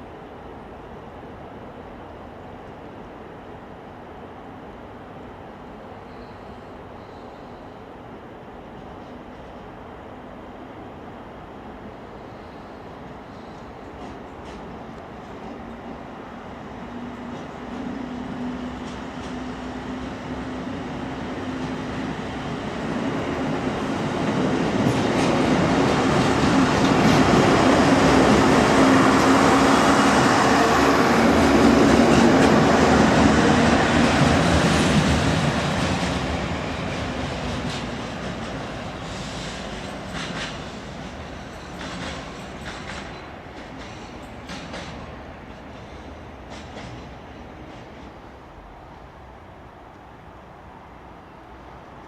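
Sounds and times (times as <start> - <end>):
passenger train passing: 0.0 - 52.0
wheels clacking over rail joints: 31.4 - 48.2.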